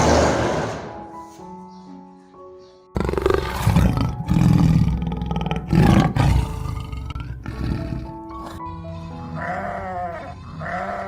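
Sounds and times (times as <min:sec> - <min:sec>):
animal roaring: 0:03.0 - 0:08.6.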